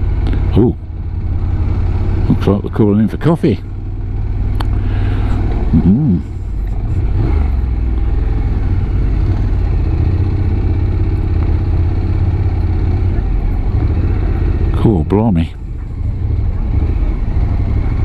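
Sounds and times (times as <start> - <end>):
motorcycle engine running: 0.0 - 18.0
short vocal sound: 5.1 - 7.5.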